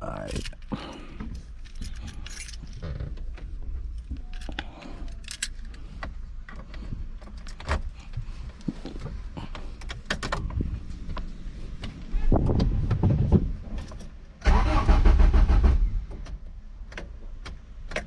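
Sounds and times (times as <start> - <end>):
keys jangling: 0.2 - 3.0, 3.9 - 6.0, 7.2 - 8.0, 13.8 - 14.2
sharp clicks and light knocks: 16.1 - 18.0.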